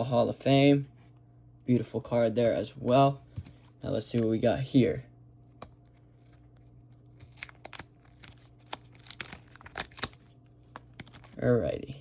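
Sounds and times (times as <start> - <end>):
faint steady hum: 0.0 - 12.0
packaging torn and crinkled: 7.1 - 11.4.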